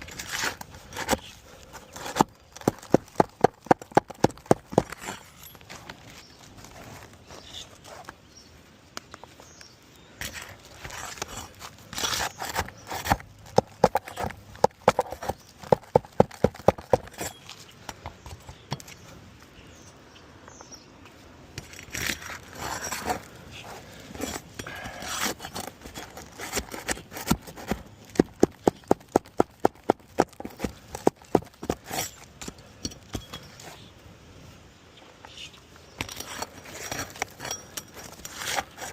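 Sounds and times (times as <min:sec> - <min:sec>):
scraping roof shingle: 0:00.0 - 0:08.2, 0:10.2 - 0:17.4, 0:21.6 - 0:32.5, 0:36.0 - 0:38.9.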